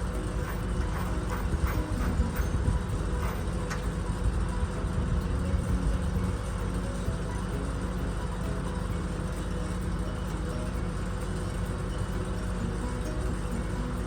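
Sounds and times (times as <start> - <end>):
heavy engine running: 0.0 - 14.0.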